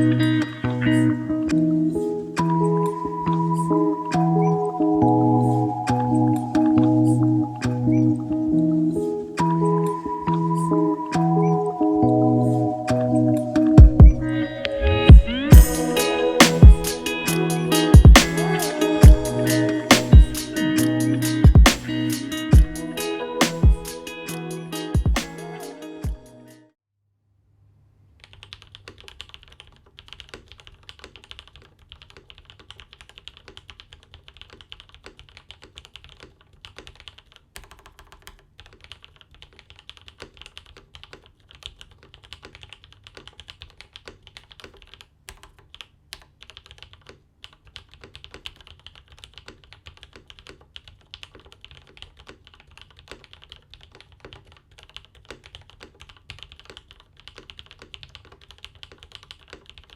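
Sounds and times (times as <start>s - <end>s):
typing on mechanical keyboard: 28.2s - 59.9s.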